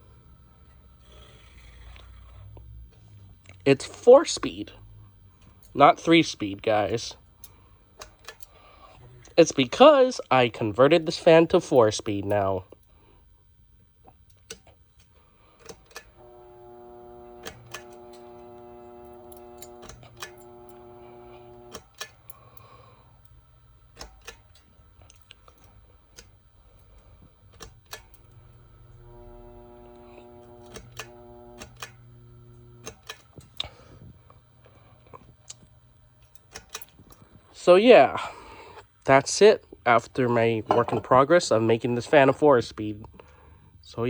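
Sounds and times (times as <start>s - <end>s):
fan motor electrical hum: 0.0s - 44.0s
fan pull-chain switch clicking: 5.4s - 9.9s, 10.9s - 13.0s, 14.1s - 37.5s.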